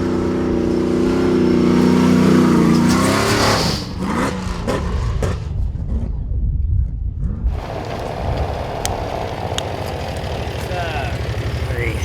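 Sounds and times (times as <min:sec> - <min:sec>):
truck engine revving: 0:00.0 - 0:05.2, 0:07.5 - 0:12.0.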